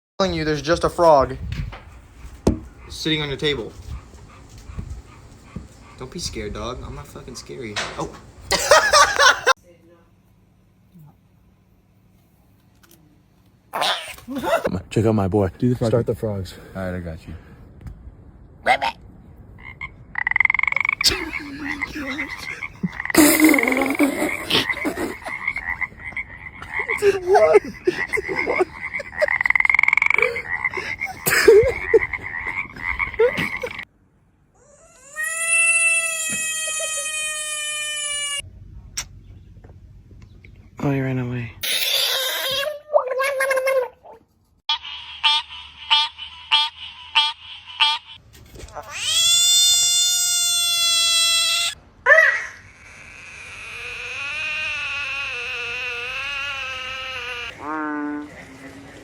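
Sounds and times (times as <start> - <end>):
frogs croaking: 18.7 - 33.9, 44.7 - 48.2, 52.6 - 58.9
long falling cry: 34.6 - 38.4, 48.9 - 58.4.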